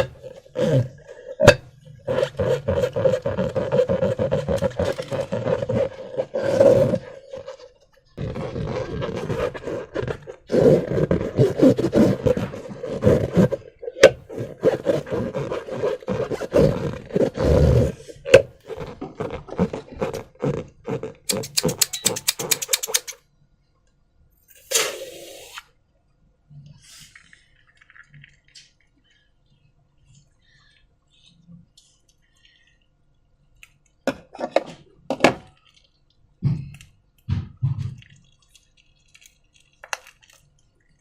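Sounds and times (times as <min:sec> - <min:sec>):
slime squelching through balloon: 0:00.0 - 0:23.2
sharp wet pops: 0:21.3 - 0:23.2
short hiss: 0:24.6 - 0:25.7.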